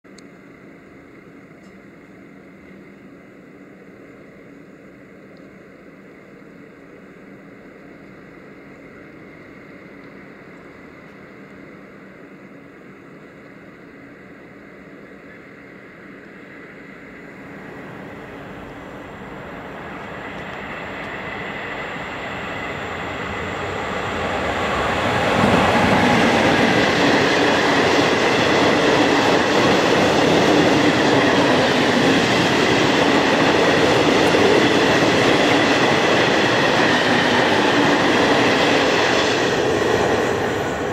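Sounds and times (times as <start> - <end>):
freight train wheels rumbling on rail: 15.0 - 40.9.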